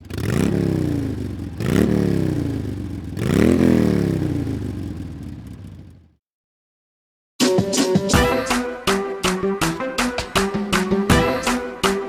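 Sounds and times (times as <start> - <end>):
small motorbike engine revving: 0.0 - 6.0.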